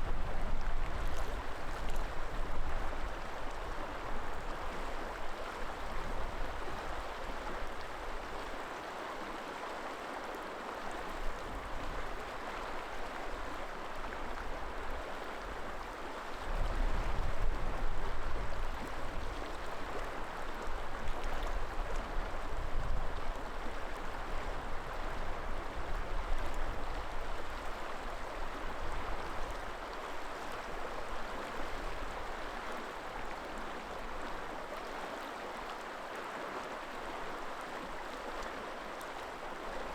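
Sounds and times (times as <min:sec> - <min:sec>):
wind rumbling on microphone: 0:00.0 - 0:03.2, 0:16.5 - 0:19.5
river water rushing: 0:23.5 - 0:39.9.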